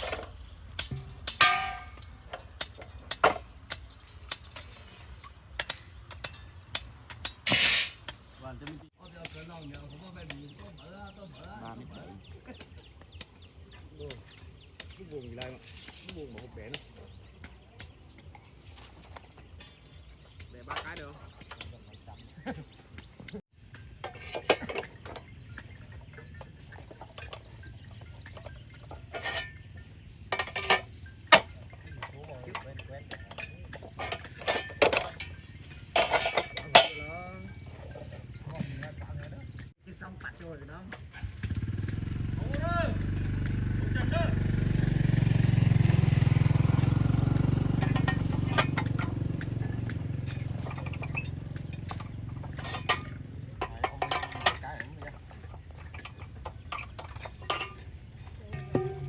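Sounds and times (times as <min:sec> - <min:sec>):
ringing metallic clang: 0:00.0 - 0:05.0, 0:12.6 - 0:39.7, 0:45.4 - 0:59.0
dishes and utensils clinking: 0:00.0 - 0:08.2, 0:13.8 - 0:39.7, 0:47.7 - 0:59.0
objects being handled: 0:12.4 - 0:39.8, 0:47.8 - 0:59.0.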